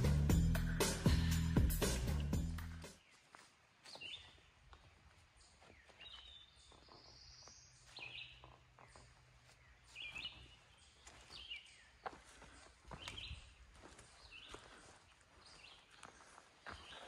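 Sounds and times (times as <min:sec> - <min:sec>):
background music: 0:00.0 - 0:03.0
faint birdsong: 0:00.0 - 0:17.0
footsteps on leaf litter: 0:03.0 - 0:17.0.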